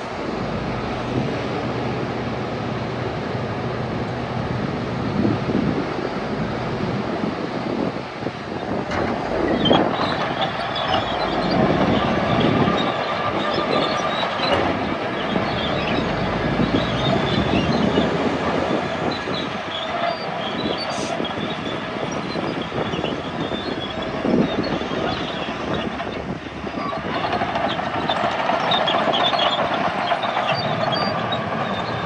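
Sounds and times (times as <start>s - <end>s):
dozer engine under load: 0.0s - 32.0s
steel tracks clanking and squealing: 6.3s - 32.0s.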